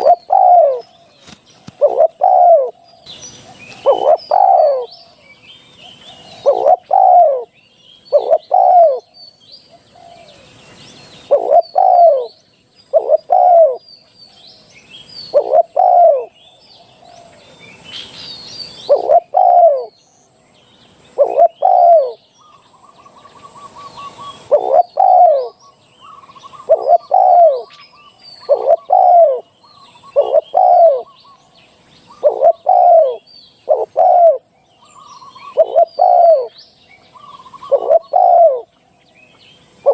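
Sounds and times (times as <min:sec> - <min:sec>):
dove cooing: 0:00.0 - 0:02.9, 0:03.5 - 0:05.0, 0:06.0 - 0:07.5, 0:08.1 - 0:09.1, 0:11.2 - 0:13.8, 0:15.3 - 0:16.4, 0:18.8 - 0:19.9, 0:21.2 - 0:22.2, 0:22.9 - 0:27.8, 0:28.4 - 0:31.4, 0:32.1 - 0:36.6, 0:37.2 - 0:38.7
small birds chirping: 0:00.0 - 0:39.9.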